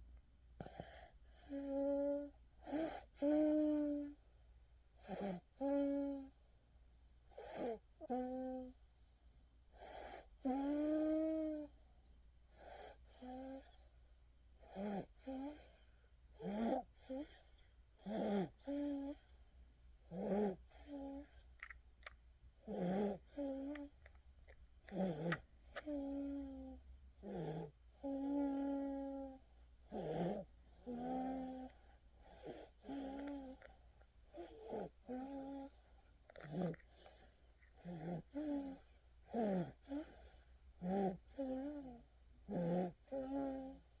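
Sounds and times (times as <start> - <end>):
wheezy whistling snore: 7.4 - 7.8.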